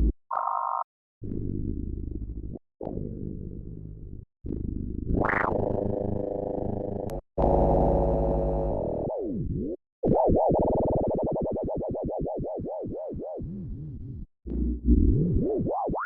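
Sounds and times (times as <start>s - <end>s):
sustained low synthesizer chord: 5.4s - 9.1s.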